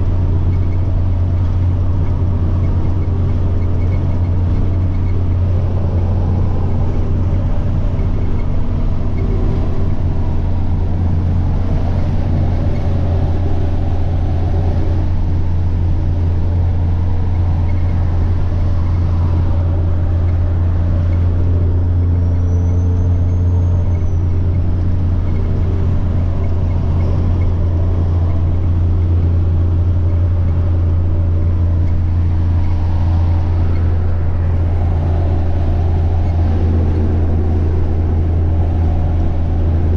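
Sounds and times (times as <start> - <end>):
faint turbo whine: 0.0 - 39.9
truck diesel engine droning: 0.0 - 39.9.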